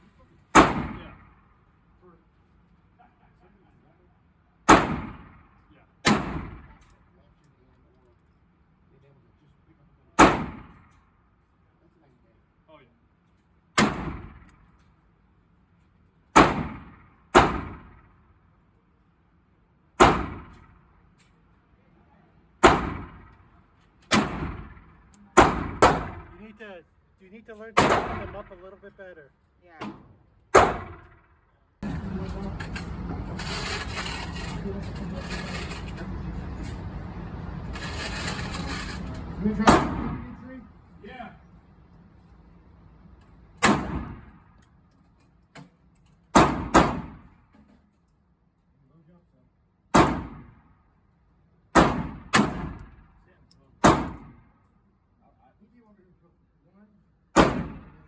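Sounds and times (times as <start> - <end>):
gunshots: 0.5 - 1.5, 4.7 - 6.8, 10.2 - 10.9, 13.8 - 14.5, 16.4 - 18.2, 20.0 - 20.8, 22.6 - 23.5, 24.1 - 26.4, 27.8 - 28.7, 30.5 - 31.3, 39.5 - 40.4, 43.6 - 44.5, 46.4 - 47.4, 49.9 - 50.6, 51.8 - 53.1, 53.8 - 54.5, 57.4 - 58.0.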